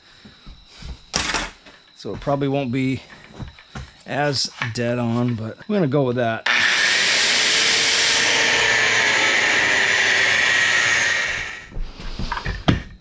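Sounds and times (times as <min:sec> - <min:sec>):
power grinder on metal: 0:06.5 - 0:11.7.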